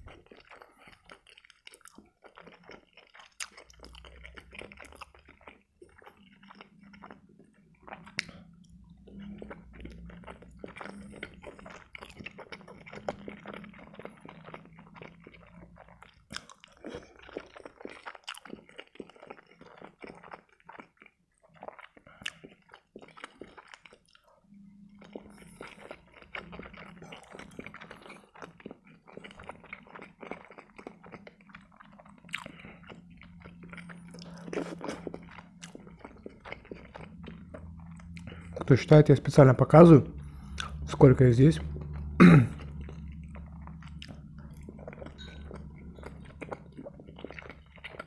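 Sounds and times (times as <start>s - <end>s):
wet chewing and lip smacking: 0.0s - 41.0s, 41.6s - 48.0s.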